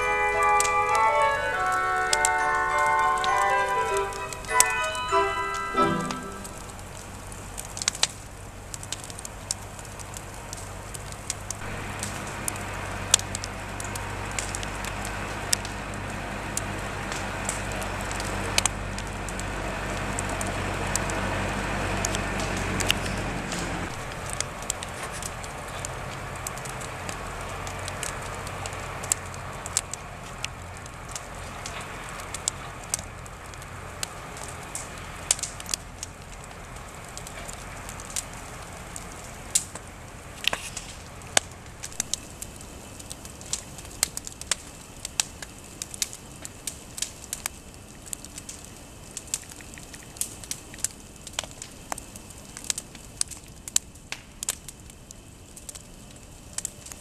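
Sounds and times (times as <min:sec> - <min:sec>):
hissing rush: 0:00.0 - 0:42.9
campfire crackling and popping: 0:00.0 - 0:57.0.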